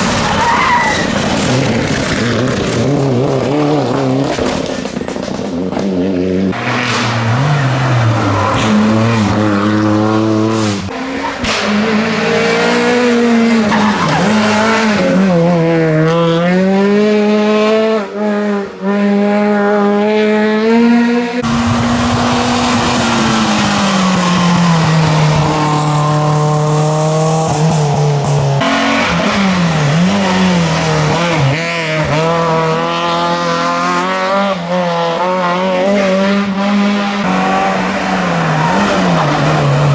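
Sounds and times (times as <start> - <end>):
tyre squeal: 0.0 - 2.5
rally car engines revving: 0.0 - 39.9.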